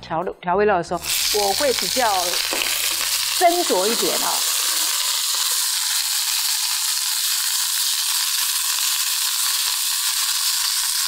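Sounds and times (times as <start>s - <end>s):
peas sizzling in a frying pan: 1.0s - 11.0s.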